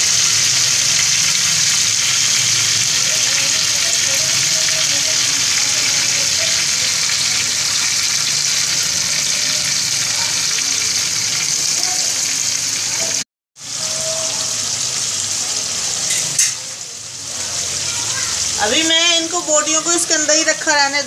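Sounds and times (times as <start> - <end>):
chicken sizzling in oil: 0.0 - 21.0.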